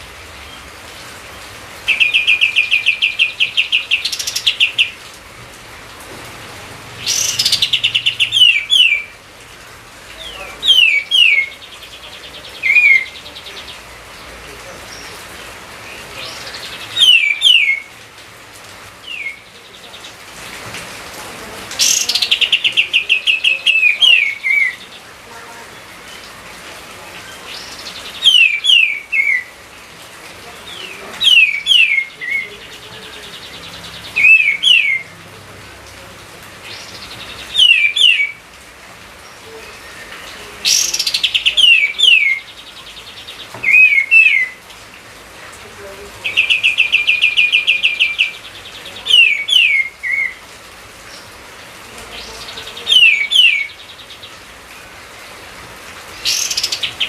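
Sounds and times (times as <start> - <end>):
songbird whistles and trills: 16.6 - 17.9, 43.6 - 44.6.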